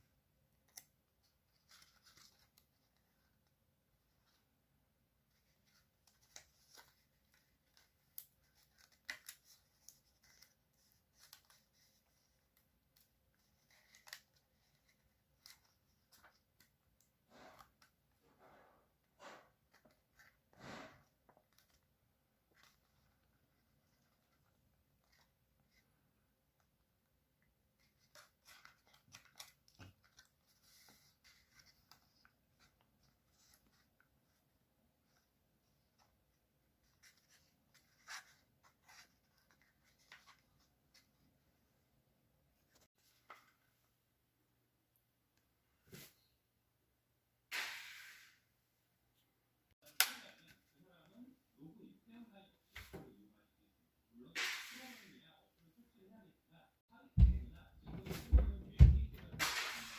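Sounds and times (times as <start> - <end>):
paper crinkling and folding: 0.6 - 3.5, 5.3 - 16.8, 27.8 - 34.4.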